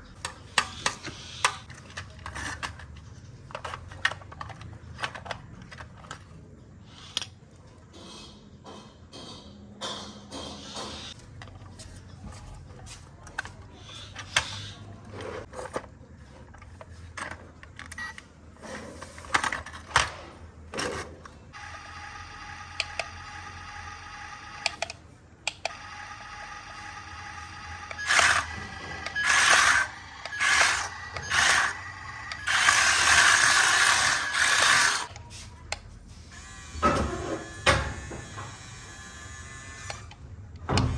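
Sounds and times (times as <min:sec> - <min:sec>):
clicks and knocks of moving parts: 0:00.1 - 0:07.4
toy truck electric motors whining: 0:20.8 - 0:35.2, 0:36.3 - 0:40.2.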